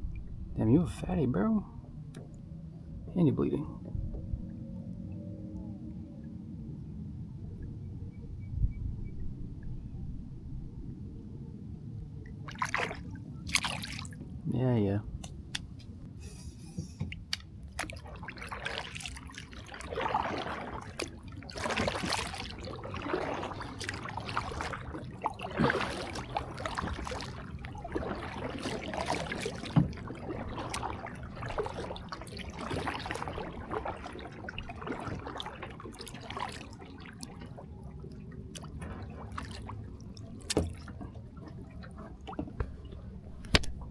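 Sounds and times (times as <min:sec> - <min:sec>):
water splashing around kayak: 0:00.0 - 0:07.8, 0:09.4 - 0:43.9.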